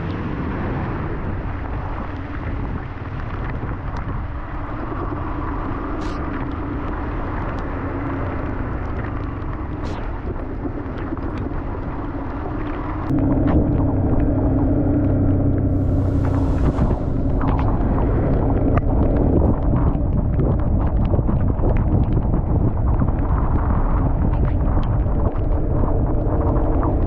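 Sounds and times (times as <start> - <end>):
wind and road noise: 0.0 - 27.0
motorcycle engine running: 13.1 - 21.6.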